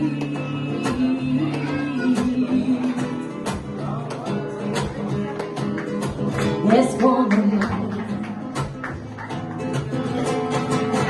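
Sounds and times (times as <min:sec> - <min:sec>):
person singing: 0:00.0 - 0:04.2
acoustic guitar strumming: 0:00.0 - 0:11.0.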